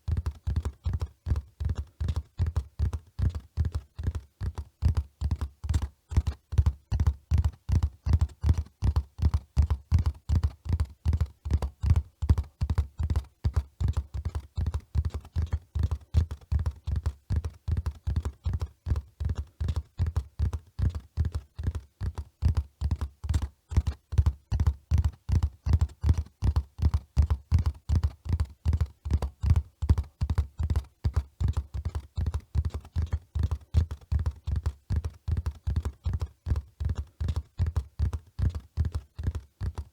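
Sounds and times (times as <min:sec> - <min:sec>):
horse hoofbeats: 0:00.1 - 0:39.9.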